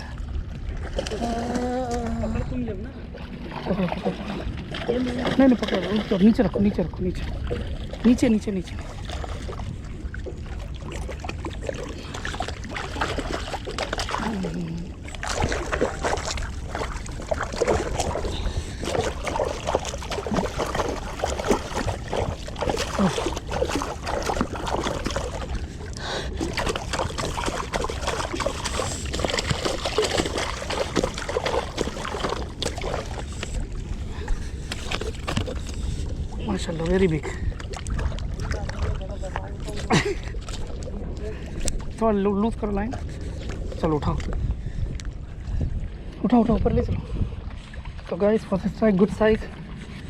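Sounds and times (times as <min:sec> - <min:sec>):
wind on microphone: 0:00.0 - 0:50.0
fish splashing in water: 0:08.8 - 0:36.1.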